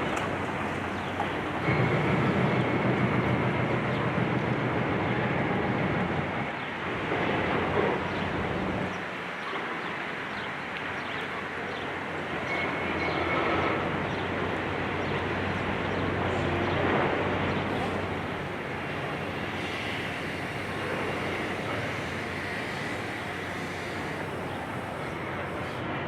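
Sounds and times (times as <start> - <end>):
excavator low hum: 0.0 - 9.0.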